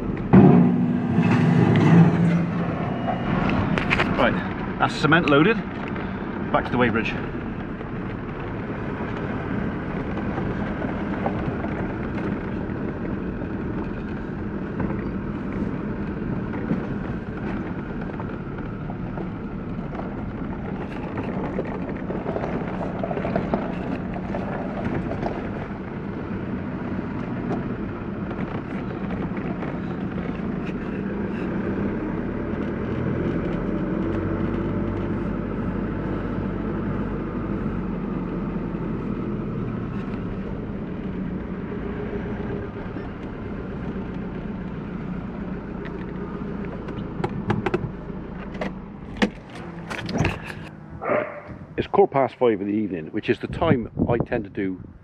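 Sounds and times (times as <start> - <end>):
vehicle engine running: 0.0 - 53.6
sharp knocks and clicks: 45.8 - 50.7.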